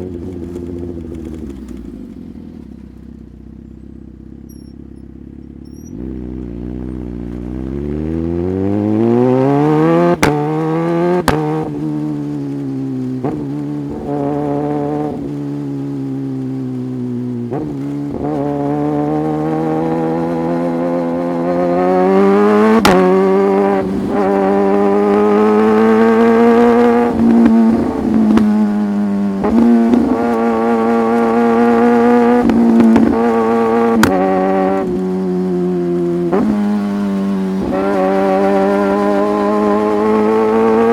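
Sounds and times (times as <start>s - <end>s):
motorcycle engine under throttle: 0.0s - 40.9s.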